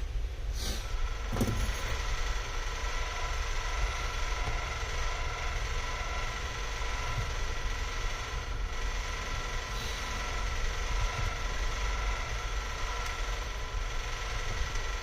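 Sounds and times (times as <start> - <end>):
faint high whine: 0.0 - 15.0
low mechanical hum: 0.0 - 15.0.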